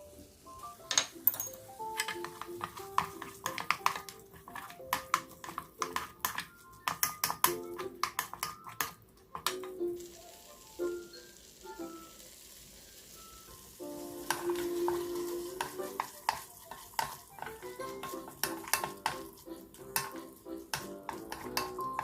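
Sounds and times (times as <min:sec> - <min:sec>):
food sizzling in a pan: 0:00.0 - 0:22.0
soft background music: 0:00.0 - 0:22.0
spatula clacking against pan: 0:01.4 - 0:09.8, 0:14.2 - 0:22.0.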